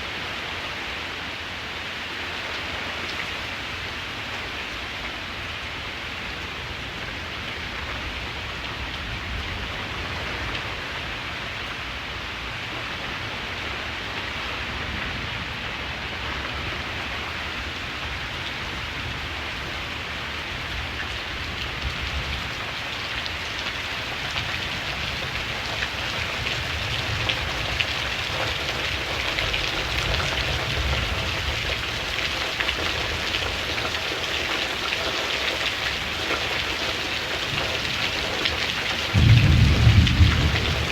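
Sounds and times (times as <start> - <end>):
steady rain falling: 0.0 - 40.9
low rumble of thunder: 24.0 - 33.7, 37.2 - 40.9.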